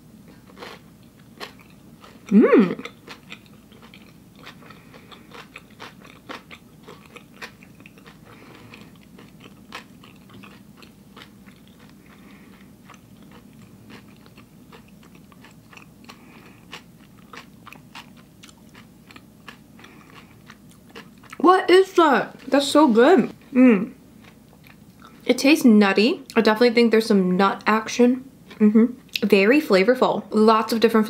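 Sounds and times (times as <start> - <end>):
person chewing crunchy food: 0.2 - 21.5, 24.1 - 25.3.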